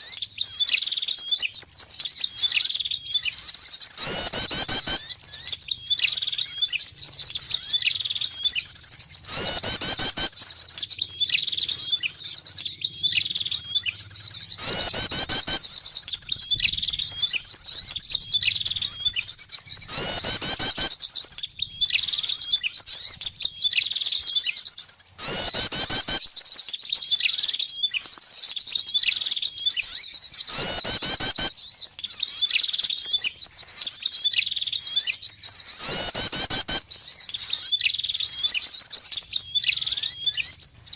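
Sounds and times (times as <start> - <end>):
small songbirds chirping: 0.0 - 40.9
harsh bird call burst: 3.3 - 21.2, 25.2 - 26.4, 30.3 - 31.9, 35.8 - 37.0.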